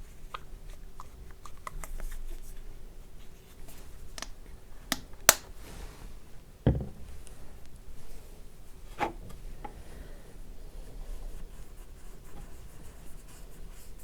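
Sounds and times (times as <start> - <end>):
dull knock: 6.7 - 7.1.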